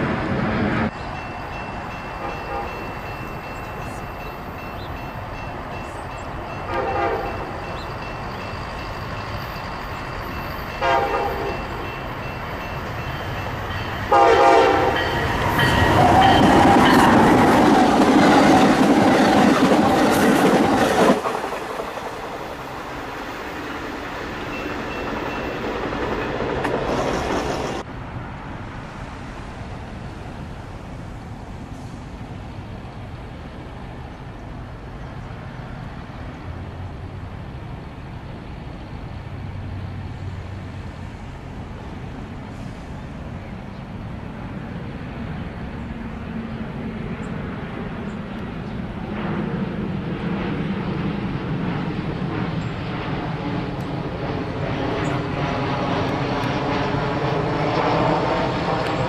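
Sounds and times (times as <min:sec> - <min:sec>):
falling pitched train tone: 0:00.0 - 0:27.8
train wheels on rails: 0:00.0 - 0:59.0.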